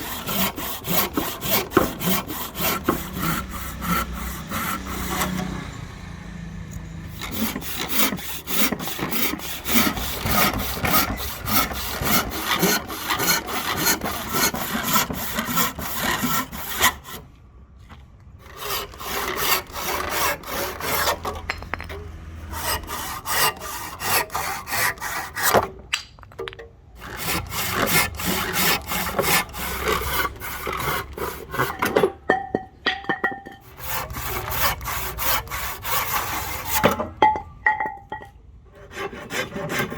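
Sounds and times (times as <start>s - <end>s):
hand saw rasping through wood: 0.0s - 5.8s, 7.1s - 17.2s, 18.4s - 25.8s, 27.0s - 32.1s, 33.6s - 37.1s, 38.8s - 39.9s.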